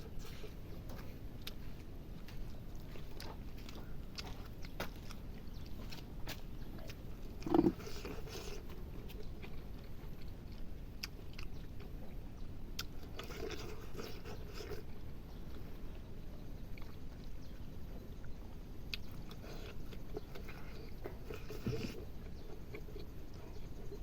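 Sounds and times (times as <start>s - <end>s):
chewing and crunching food: 0.0s - 24.0s
mouth clicks: 7.4s - 8.1s.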